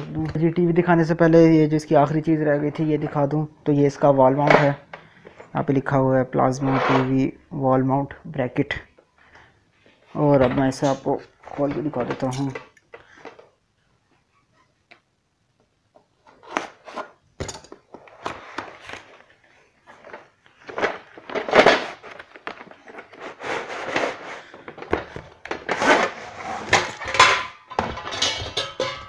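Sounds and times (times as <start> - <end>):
metal brackets knocking together: 26.7 - 29.0.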